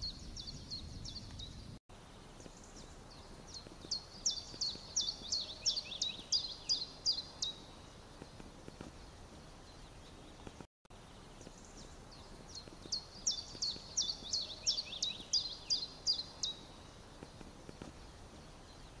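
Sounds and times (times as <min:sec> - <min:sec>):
songbird singing high notes: 0:03.9 - 0:07.7, 0:11.6 - 0:16.8.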